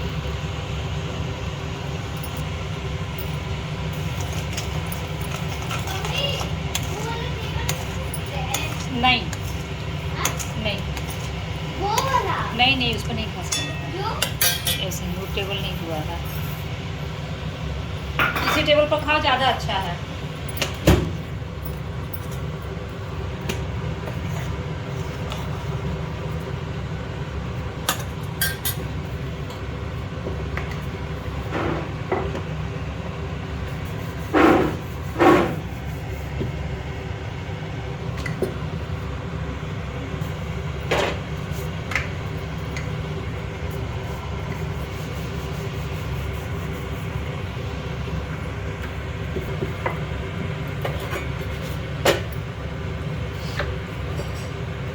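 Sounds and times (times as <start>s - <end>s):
kitchen utensils clinking: 3.2s - 16.5s, 18.2s - 21.0s, 27.9s - 28.9s.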